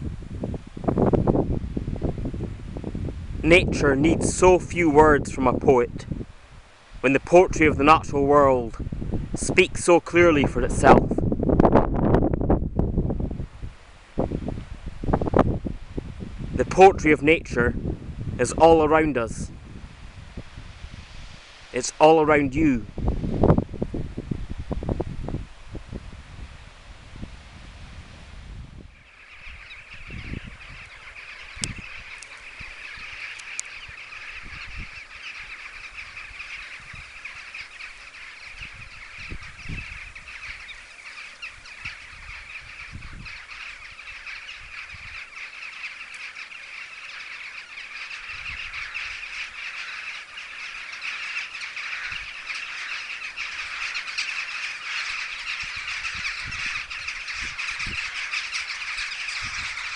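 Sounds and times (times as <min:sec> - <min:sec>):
wind buffeting microphone: 0:00.0 - 0:45.6, 0:48.2 - 0:49.6, 0:51.9 - 0:59.9
chorus of birds chattering: 0:00.9 - 0:06.3, 0:06.9 - 0:12.4, 0:16.6 - 0:20.2, 0:21.6 - 0:23.7, 0:28.8 - 0:59.9.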